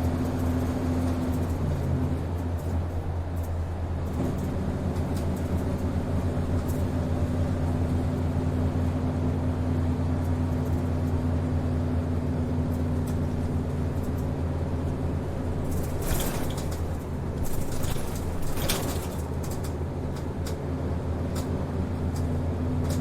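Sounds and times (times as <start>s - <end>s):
bus diesel engine droning: 0.0s - 23.0s
light rattles: 15.5s - 20.6s.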